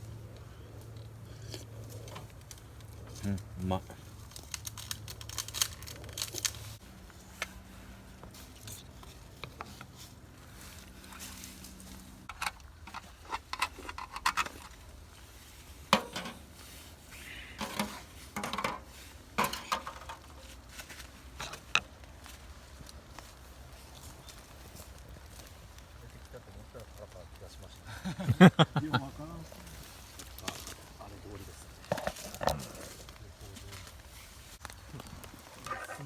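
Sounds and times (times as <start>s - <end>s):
utensils clinking and scraping: 11.0s - 14.8s, 15.9s - 16.6s, 17.6s - 21.8s.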